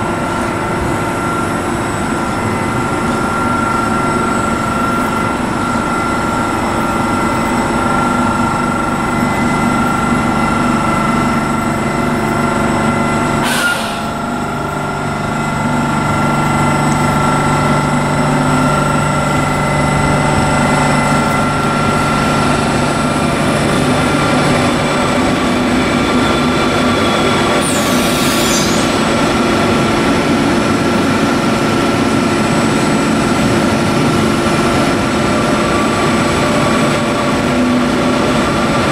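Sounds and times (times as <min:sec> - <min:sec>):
train wheels rumbling on rails: 0:00.0 - 0:38.9
high-pitched squeal: 0:18.5 - 0:30.4.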